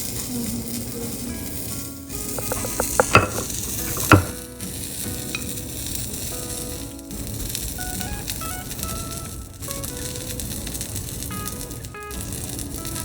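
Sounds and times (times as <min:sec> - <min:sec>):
fish sizzling in hot oil: 0:00.0 - 0:13.0
utensil knocking against pan: 0:02.4 - 0:04.4.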